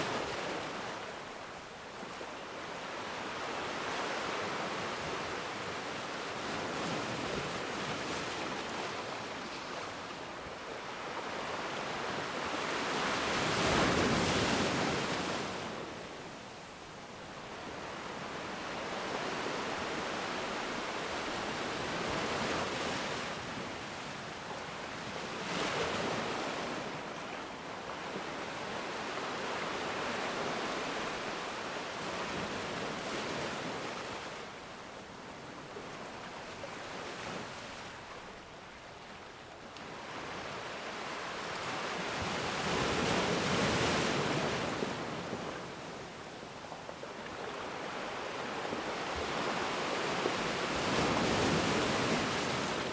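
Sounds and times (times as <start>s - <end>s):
ocean waves breaking on shore: 0.0s - 52.9s.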